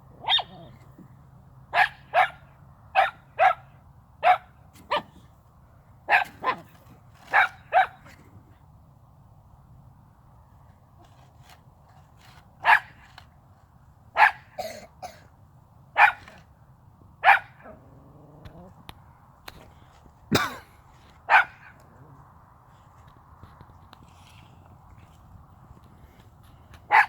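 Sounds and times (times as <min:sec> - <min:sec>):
dog barking: 0:00.2 - 0:00.8, 0:01.7 - 0:02.4, 0:03.0 - 0:05.2, 0:06.1 - 0:06.7, 0:07.3 - 0:08.0, 0:12.6 - 0:12.9, 0:14.2 - 0:14.8, 0:16.0 - 0:16.4, 0:17.2 - 0:17.7, 0:21.3 - 0:21.8.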